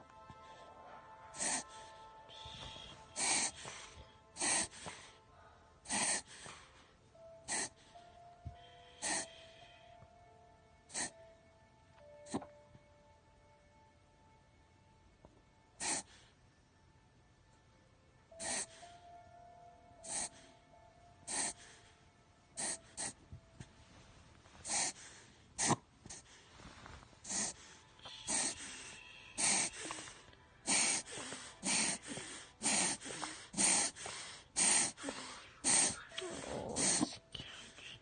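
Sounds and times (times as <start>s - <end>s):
dog making breathy sounds: 3.1s - 5.1s, 5.9s - 6.7s, 7.5s - 7.8s, 9.0s - 9.3s, 15.8s - 16.1s, 18.4s - 18.8s, 21.3s - 21.8s, 22.6s - 23.2s, 24.6s - 26.4s, 27.2s - 37.3s.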